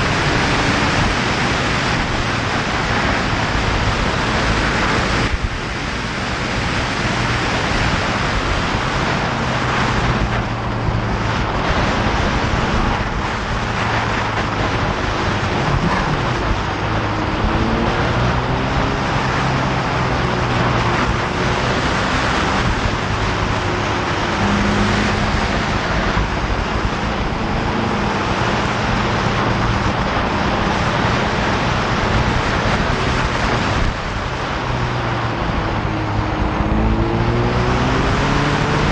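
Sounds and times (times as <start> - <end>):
motorcycle engine cruising: 0.0 - 38.9
wind rush on microphone: 0.0 - 38.9.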